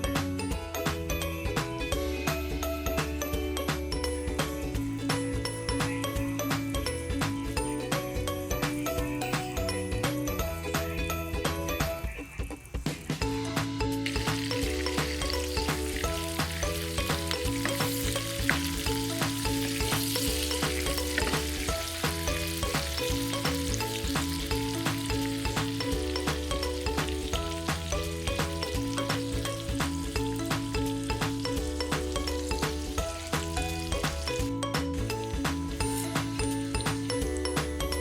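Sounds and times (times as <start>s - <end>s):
background music with bass: 0.0s - 38.0s
food sizzling in a pan: 12.1s - 34.4s, 35.2s - 37.7s.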